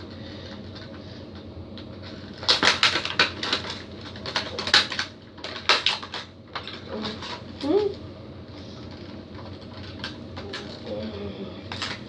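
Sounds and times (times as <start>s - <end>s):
faint room noise: 0.0s - 12.0s
plastic packaging crinkling: 1.8s - 8.0s.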